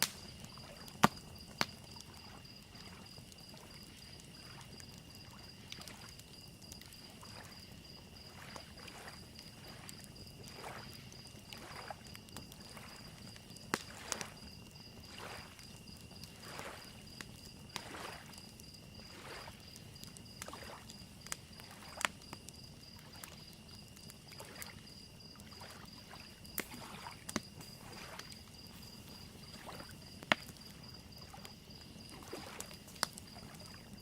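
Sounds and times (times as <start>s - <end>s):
campfire crackling: 0.0s - 34.0s
crickets chirping: 0.0s - 34.0s
waves lapping on shoreline: 15.0s - 15.6s, 16.4s - 17.1s, 17.8s - 18.3s, 25.5s - 29.9s, 32.0s - 33.8s.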